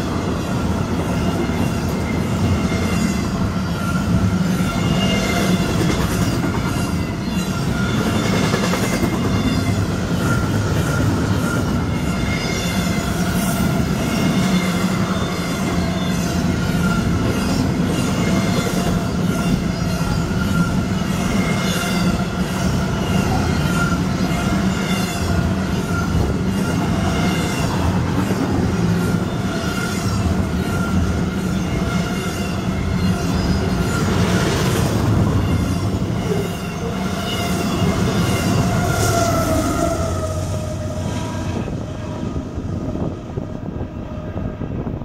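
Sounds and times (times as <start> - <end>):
wheels squealing against rails: 0.0 - 45.0
train wheels clacking over rail joints: 4.7 - 12.4.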